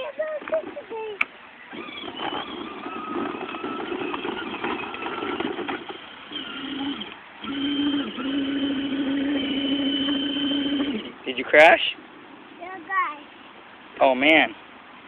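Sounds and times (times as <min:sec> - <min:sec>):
motor humming: 0:01.6 - 0:11.4
rough mixed noise: 0:01.7 - 0:13.1.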